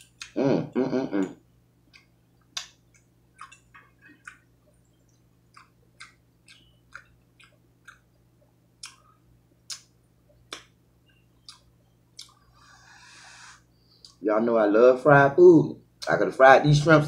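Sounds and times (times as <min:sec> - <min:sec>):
wet mouth clicks and lip smacks: 0:01.9 - 0:04.5, 0:08.8 - 0:09.1, 0:09.7 - 0:09.9, 0:10.5 - 0:12.5
person chewing food: 0:01.9 - 0:14.2.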